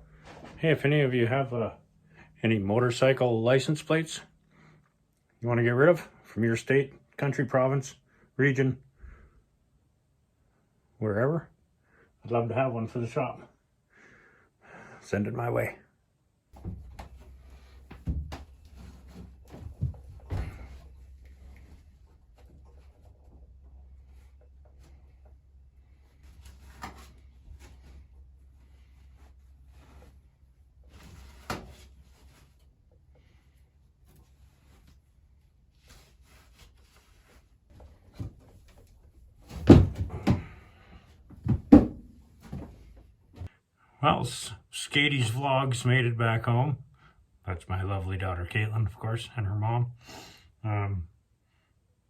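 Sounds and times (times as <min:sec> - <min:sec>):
rustling and handling noise: 0:16.6 - 0:43.5
loud wooden thuds: 0:39.4 - 0:40.7, 0:41.3 - 0:43.5.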